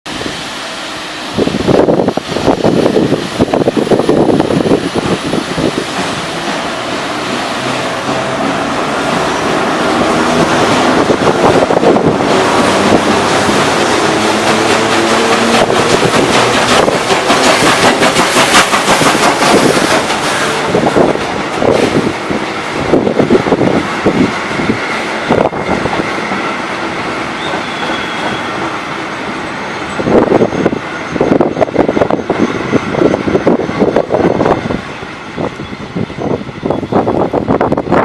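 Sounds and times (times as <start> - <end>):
train rail running noise: 0.0 - 38.0
wheels clicking over rail joints: 11.3 - 22.0.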